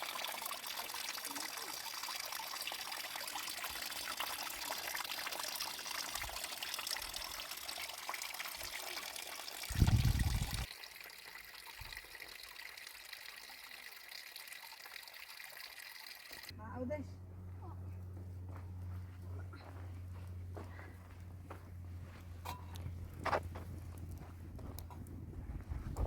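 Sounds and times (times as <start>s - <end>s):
water running and trickling: 0.0s - 16.5s.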